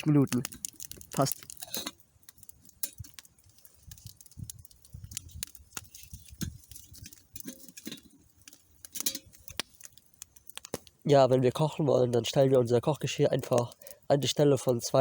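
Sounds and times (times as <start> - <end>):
campfire crackling: 0.0 - 15.0
wood snapping: 0.3 - 11.0.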